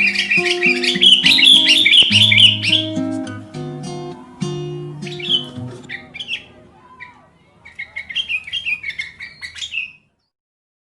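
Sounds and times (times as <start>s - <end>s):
small songbirds chirping: 0.0s - 4.1s, 4.7s - 10.3s
guitar music: 0.0s - 6.8s.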